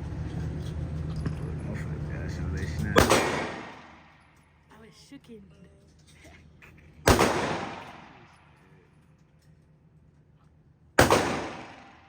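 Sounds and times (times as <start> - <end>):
pistol shots: 3.0 - 4.2, 7.0 - 8.4, 11.0 - 12.0.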